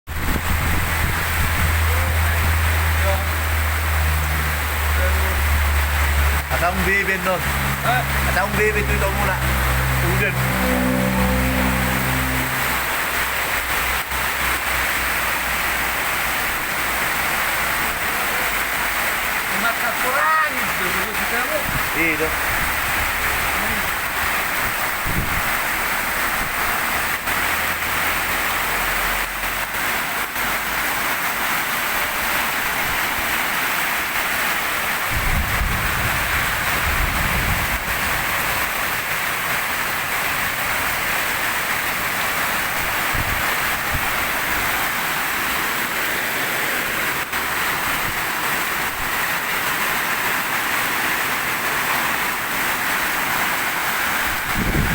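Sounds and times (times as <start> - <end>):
heavy rain pouring: 0.0 - 54.9
wind buffeting microphone: 0.1 - 2.6, 24.2 - 25.6, 35.1 - 38.4, 54.2 - 54.9.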